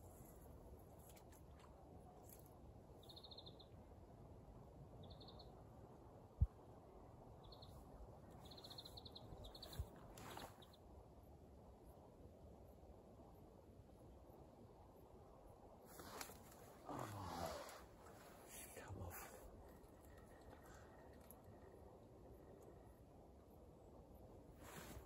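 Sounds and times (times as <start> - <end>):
small bird chirping: 2.2 - 3.8, 5.0 - 5.6, 7.4 - 10.8
brief rustle: 15.9 - 16.8.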